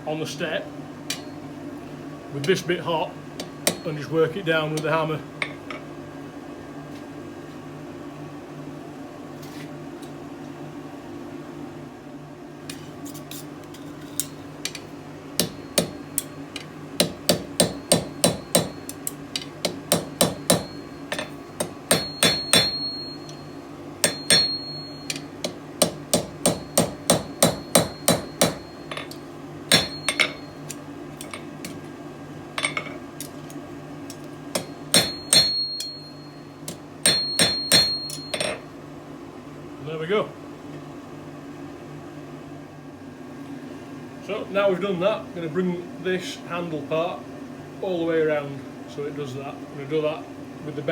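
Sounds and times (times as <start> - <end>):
hammer striking anvil: 3.4 - 4.0, 15.4 - 16.3, 17.0 - 31.4, 34.6 - 38.6
high metallic ring: 20.2 - 25.4, 26.4 - 30.7, 34.6 - 38.7.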